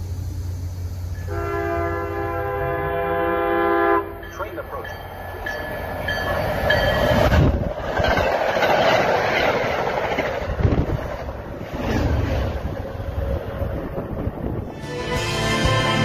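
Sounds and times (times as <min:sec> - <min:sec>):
train wheels rushing on rail: 0:00.0 - 0:16.0
wheels clacking over rail joints: 0:04.1 - 0:14.6.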